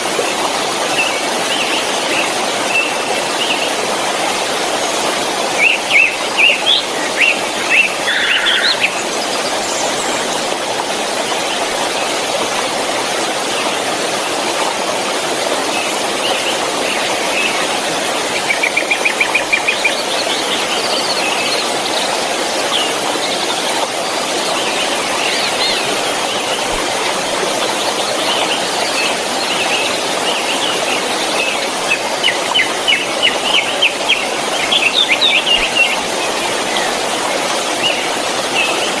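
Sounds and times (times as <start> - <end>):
waterfall rushing: 0.0 - 39.0
birds chirping: 5.5 - 10.4.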